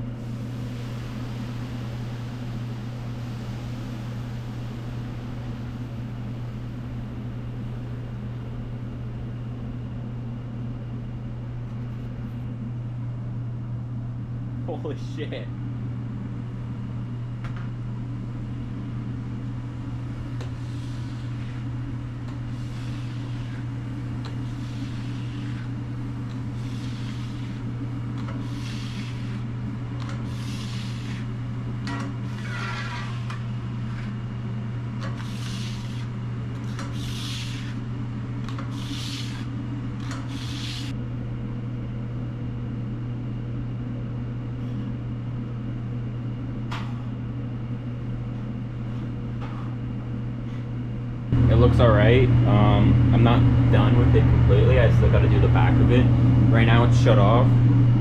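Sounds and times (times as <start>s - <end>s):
low equipment hum: 0.0s - 58.0s
scrubbing strokes on grill: 20.3s - 41.0s.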